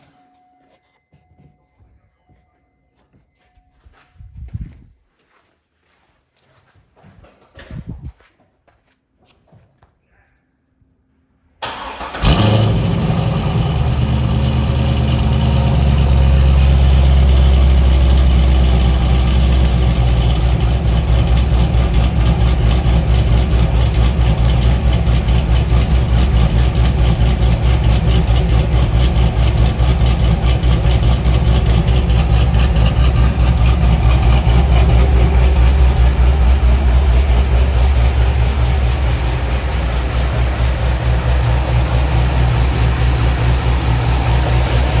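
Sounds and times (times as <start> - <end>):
car engine cold-starting: 11.6 - 45.0.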